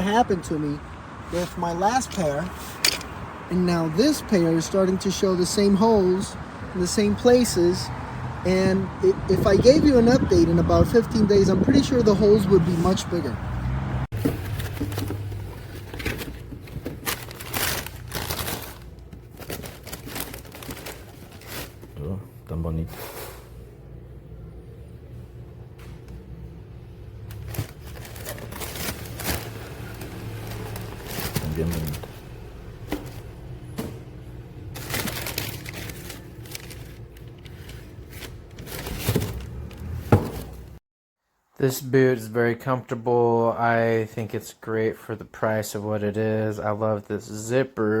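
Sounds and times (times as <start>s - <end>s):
material crinkling and rustling: 14.1s - 22.0s, 27.3s - 33.3s, 34.7s - 40.8s.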